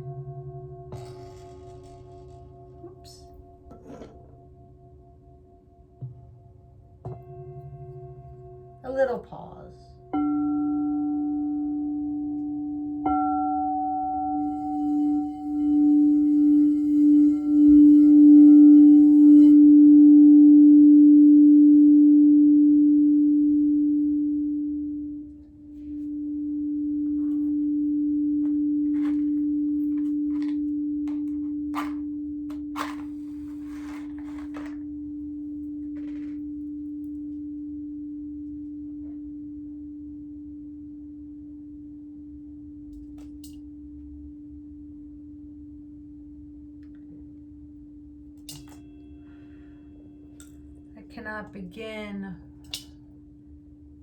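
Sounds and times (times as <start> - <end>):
singing bowl ringing: 10.1 - 40.4.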